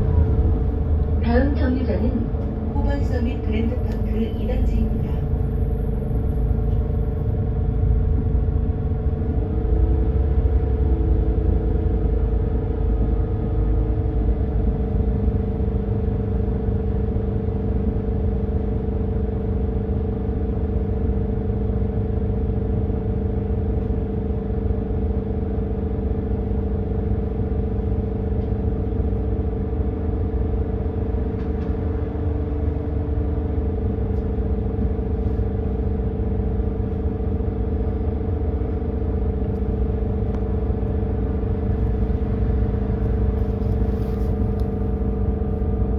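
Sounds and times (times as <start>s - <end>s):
faint low tone: 0.0s - 4.0s
bus engine rumble: 0.0s - 45.9s
steady hum: 0.0s - 45.9s.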